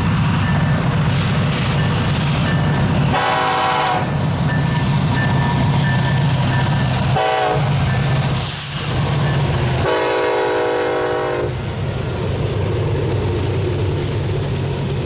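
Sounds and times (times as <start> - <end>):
train rumble: 0.0 - 15.0
locomotive horn blasts: 3.1 - 4.1, 7.1 - 7.8, 9.8 - 11.6.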